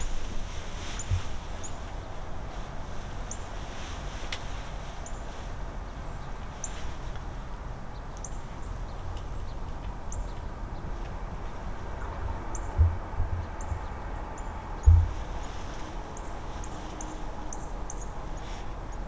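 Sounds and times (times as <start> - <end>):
steady low rumble: 8.5 - 19.0
soft low thumps: 12.2 - 14.2, 14.8 - 15.5.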